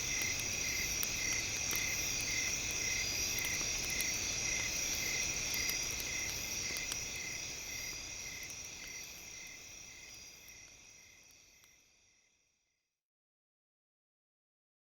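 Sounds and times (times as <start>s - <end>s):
campfire crackling and popping: 0.0s - 11.8s
insects chirping: 0.0s - 12.4s.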